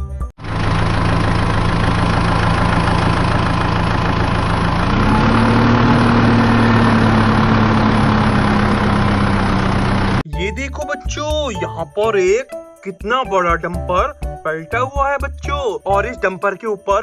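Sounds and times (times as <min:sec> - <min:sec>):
tractor engine running and revving: 0:00.4 - 0:10.2.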